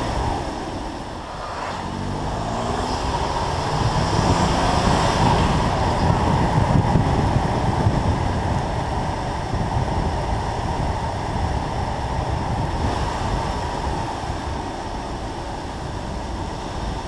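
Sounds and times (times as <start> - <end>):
tyre hiss on wet road: 0.0 - 5.7
wind buffeting microphone: 0.0 - 17.0
car engine accelerating: 0.1 - 9.1.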